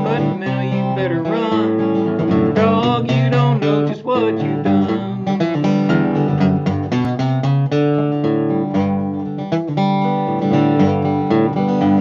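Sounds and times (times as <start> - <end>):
person singing: 0.0 - 5.8
acoustic guitar strumming: 0.0 - 12.0.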